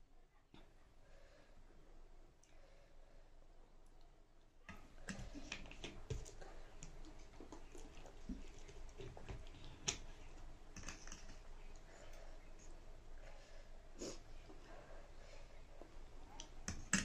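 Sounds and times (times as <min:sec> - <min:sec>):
wet chewing: 0:04.7 - 0:12.8.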